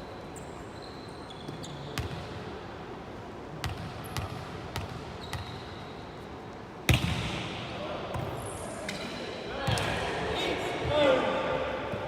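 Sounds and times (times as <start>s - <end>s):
sneakers squeaking on court: 0.0s - 2.4s, 3.6s - 6.2s
gym hall hum: 0.0s - 12.0s.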